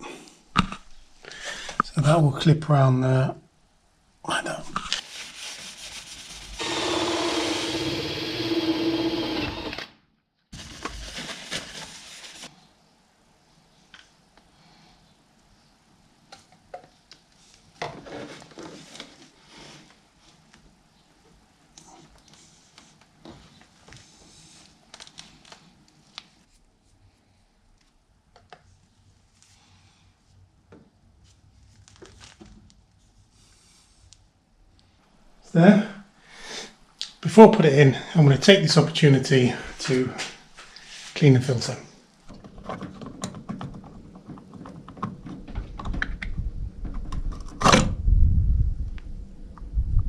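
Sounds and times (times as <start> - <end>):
power drill motor running: 6.6 - 9.9.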